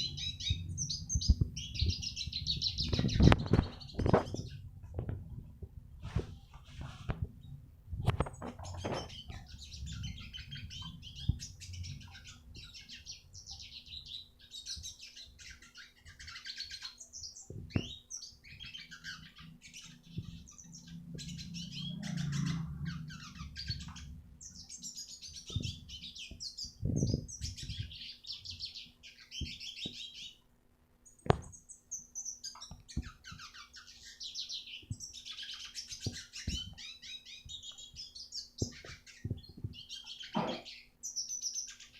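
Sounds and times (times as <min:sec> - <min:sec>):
bird singing high trills: 0:08.8 - 0:30.4.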